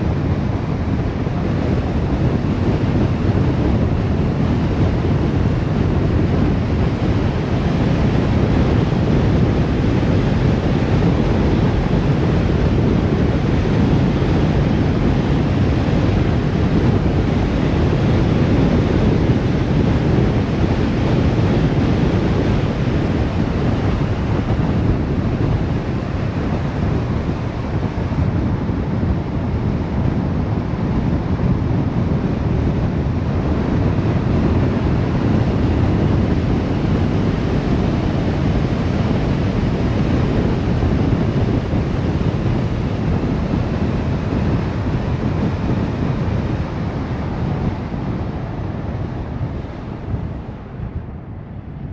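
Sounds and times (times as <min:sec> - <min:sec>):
car road and wind noise: 0:00.0 - 0:51.9.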